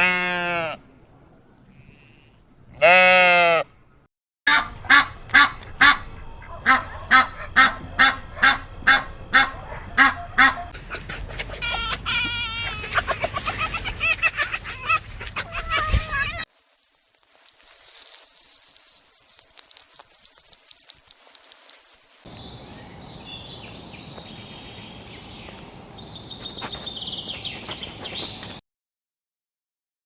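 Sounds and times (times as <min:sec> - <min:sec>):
drawn-out animal cries: 0:06.6 - 0:10.8, 0:11.5 - 0:13.1.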